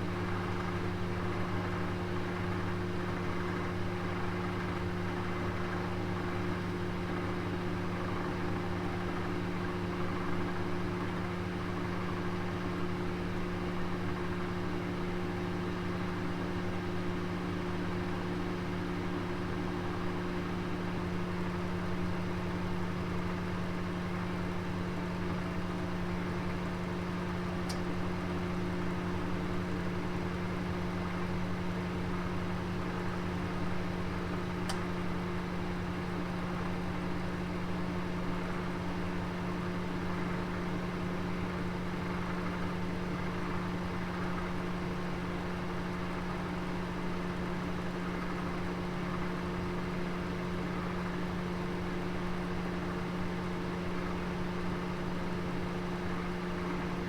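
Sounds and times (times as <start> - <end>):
small tick: 27.7 - 27.9, 34.6 - 34.9.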